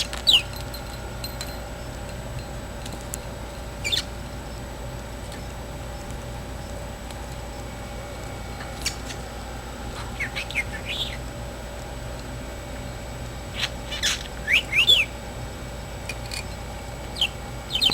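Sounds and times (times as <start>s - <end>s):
budgerigar chirping: 3.8s - 4.1s, 10.0s - 11.2s, 13.5s - 15.1s, 17.2s - 17.9s.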